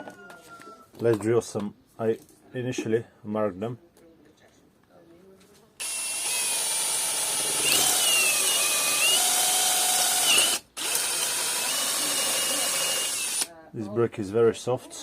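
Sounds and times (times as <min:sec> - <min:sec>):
drill boring into brick: 0:05.8 - 0:13.5.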